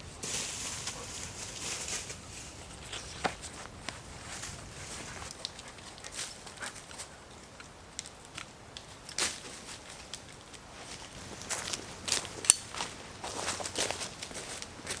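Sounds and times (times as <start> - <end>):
footsteps on leaves and twigs: 0.0 - 15.0
twigs snapping: 5.0 - 15.0.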